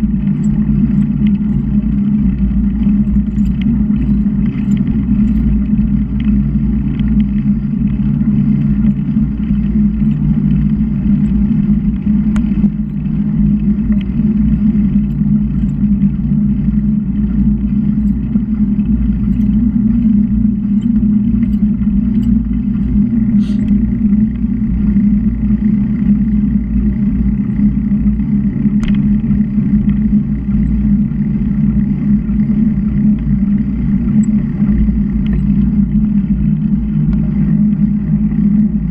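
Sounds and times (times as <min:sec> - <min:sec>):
faint ticks: 0:14.8 - 0:23.8.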